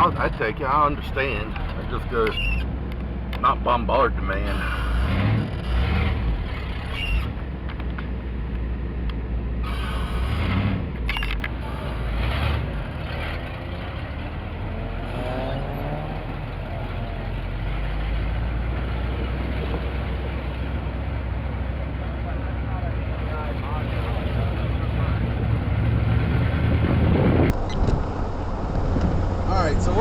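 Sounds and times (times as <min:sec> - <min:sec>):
car engine and road rumble: 0:00.0 - 0:30.0
short rising tone: 0:25.8 - 0:30.0.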